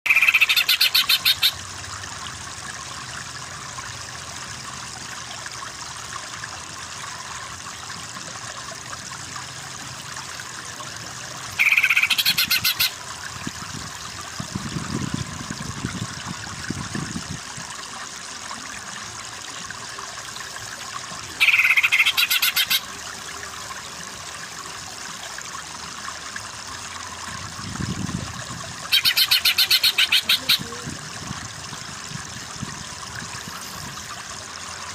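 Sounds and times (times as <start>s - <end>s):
rapidly pulsed animal call: 0.1s - 1.6s, 11.6s - 12.9s, 28.9s - 30.8s.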